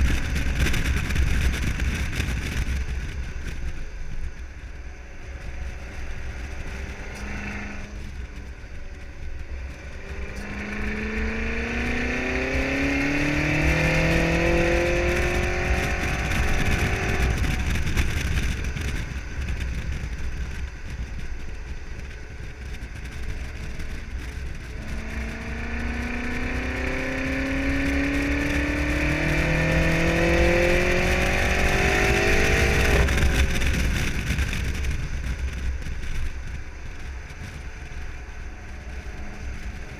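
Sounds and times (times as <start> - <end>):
car engine accelerating hard: 4.4 - 20.1, 22.9 - 36.6.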